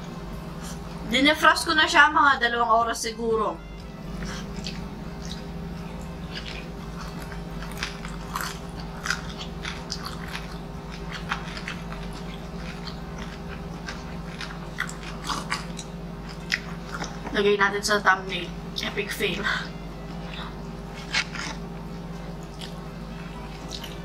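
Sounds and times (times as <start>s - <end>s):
steady low hum: 0.0s - 24.0s
people chewing crunchy food: 3.8s - 17.4s, 18.8s - 24.0s.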